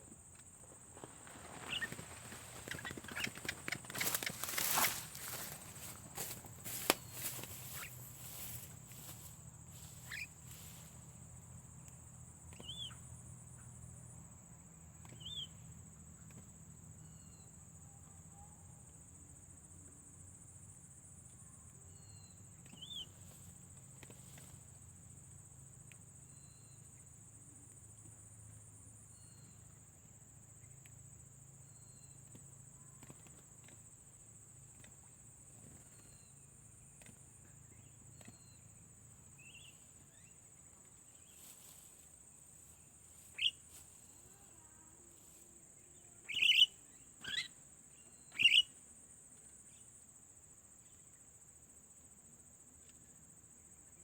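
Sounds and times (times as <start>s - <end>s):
bird chirps: 1.5s - 6.0s, 9.8s - 10.4s, 12.5s - 13.1s, 15.0s - 15.6s, 22.0s - 23.2s, 43.3s - 43.6s, 46.3s - 48.7s.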